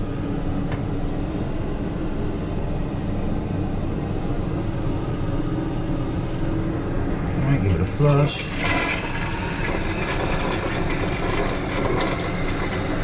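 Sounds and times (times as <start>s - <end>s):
faint valve hum: 0.0s - 13.0s
water rushing into toilet tank: 8.3s - 13.0s.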